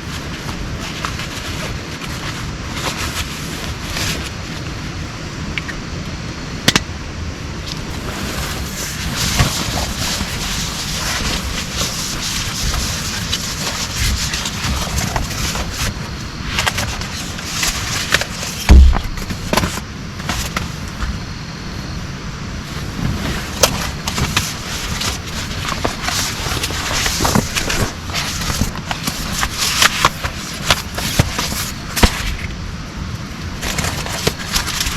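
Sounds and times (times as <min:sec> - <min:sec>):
loud low thump: 0:18.7 - 0:19.5.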